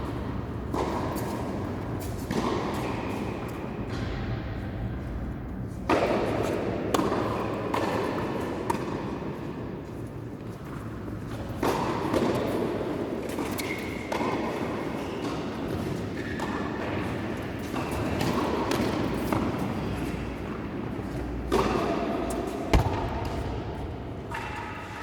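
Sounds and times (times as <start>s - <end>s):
court background noise: 10.8s - 25.0s
tennis ball hit by racket: 22.7s - 24.8s.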